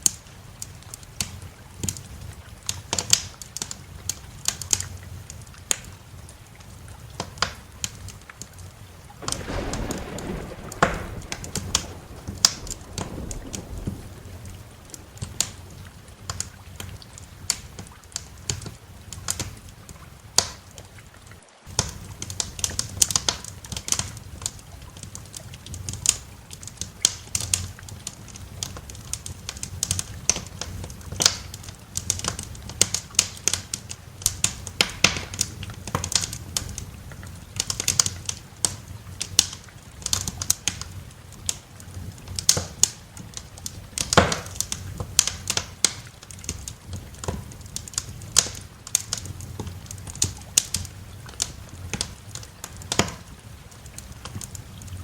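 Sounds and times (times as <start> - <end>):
wood fire crackling and popping: 0.0 - 20.9, 21.7 - 55.0
low steady rumble: 9.2 - 17.4.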